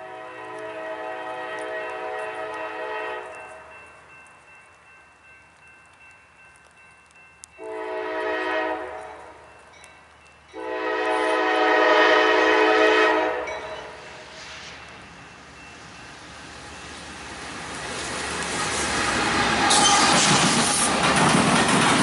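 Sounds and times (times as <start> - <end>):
train horn blasts: 0.0 - 3.7, 7.6 - 9.4, 10.6 - 14.1
train noise: 0.0 - 22.0.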